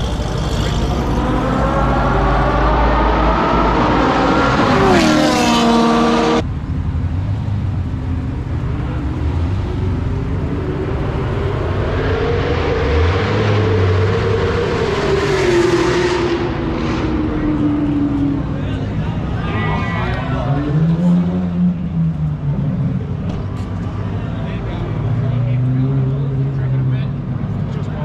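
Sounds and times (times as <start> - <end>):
engine accelerating hard: 0.0 - 6.4.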